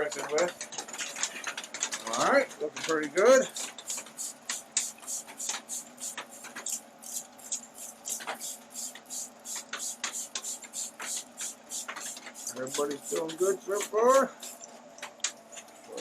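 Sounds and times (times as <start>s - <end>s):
spray bottle spritzing: 3.5s - 14.7s
spray trigger clicks: 3.6s - 14.6s.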